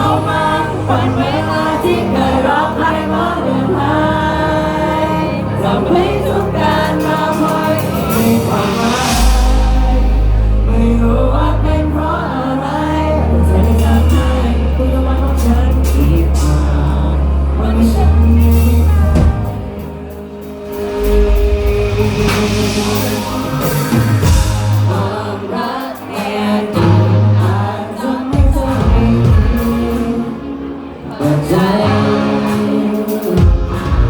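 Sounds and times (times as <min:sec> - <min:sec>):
bass line: 0:00.0 - 0:25.4, 0:28.4 - 0:30.6, 0:33.4 - 0:34.0
live band with singing: 0:00.0 - 0:34.0
cymbal crash: 0:07.1 - 0:10.8, 0:20.4 - 0:25.3.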